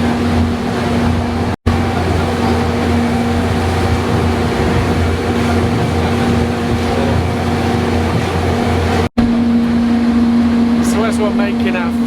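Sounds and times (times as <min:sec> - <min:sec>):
train engine droning: 0:00.0 - 0:12.0.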